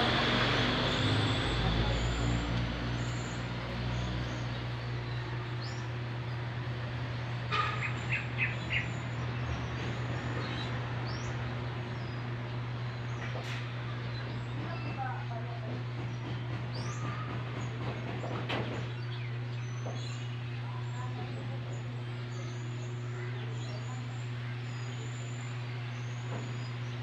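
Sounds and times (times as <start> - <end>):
birds chirping: 0.0 - 27.0
steady low hum: 0.0 - 27.0.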